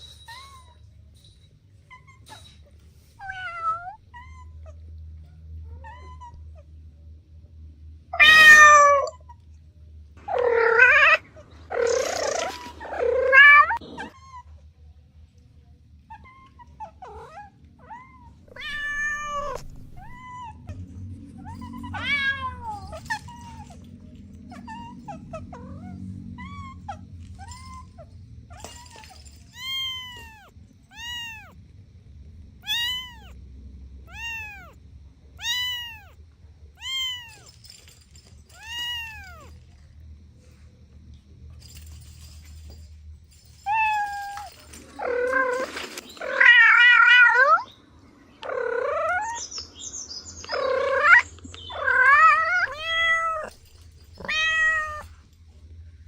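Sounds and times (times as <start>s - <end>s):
low steady rumble: 2.8s - 44.9s
cat meowing: 8.2s - 9.4s, 10.2s - 14.5s, 16.1s - 20.8s, 21.4s - 23.8s, 29.5s - 31.6s, 32.6s - 33.4s, 34.0s - 34.8s, 35.4s - 36.2s, 36.8s - 37.5s, 38.5s - 39.5s, 50.5s - 53.6s, 54.2s - 55.2s.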